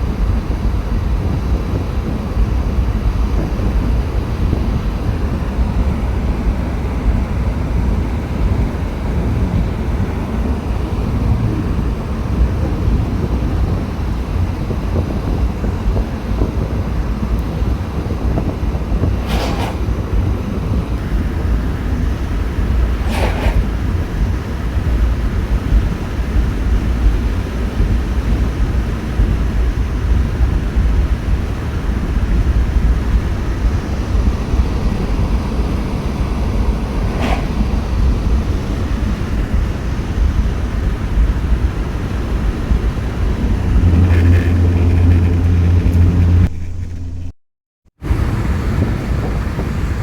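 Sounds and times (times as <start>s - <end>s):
steady low hum: 17.0s - 47.4s
vehicle rumble from inside: 40.4s - 47.4s.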